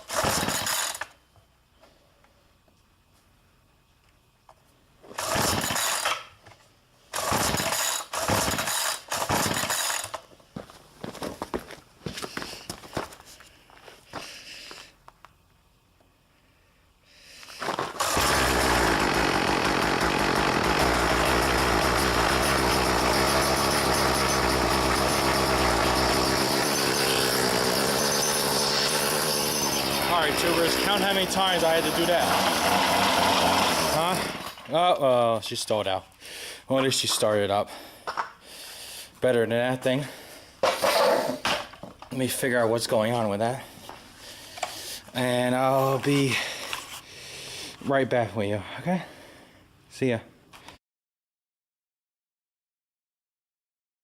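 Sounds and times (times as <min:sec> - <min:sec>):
small gasoline engine running: 0:00.0 - 0:01.1, 0:05.2 - 0:06.1, 0:07.1 - 0:10.2, 0:17.6 - 0:34.7
recoil starter cord pulled: 0:00.0 - 0:01.2, 0:05.1 - 0:06.3, 0:07.1 - 0:10.2, 0:17.6 - 0:34.7.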